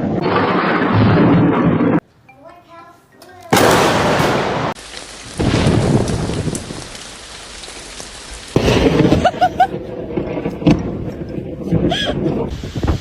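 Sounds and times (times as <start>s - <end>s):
thunder crack: 0.0s - 2.0s, 3.5s - 7.1s, 8.5s - 13.0s
thunder rumbling: 0.0s - 2.0s, 3.5s - 13.0s
heavy rain: 3.6s - 13.0s.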